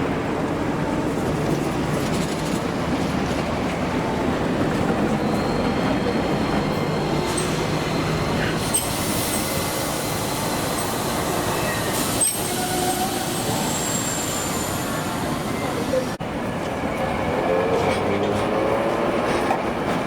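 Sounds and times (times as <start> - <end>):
tram running on track: 0.0 - 20.0
high wheel squeals: 5.0 - 16.1.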